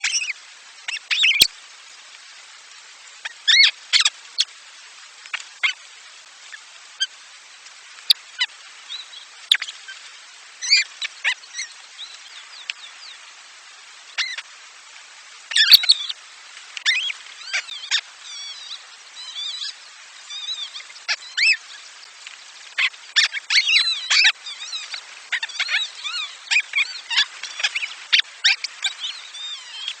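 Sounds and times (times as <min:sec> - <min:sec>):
faint steady hiss: 0:00.0 - 0:30.0
nestling birds chirping: 0:15.5 - 0:16.2, 0:16.8 - 0:21.9, 0:22.7 - 0:30.0.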